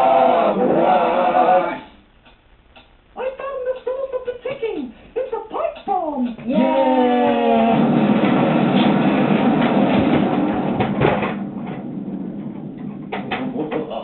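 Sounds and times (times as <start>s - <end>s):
rushing hissing explosion: 7.6s - 11.1s.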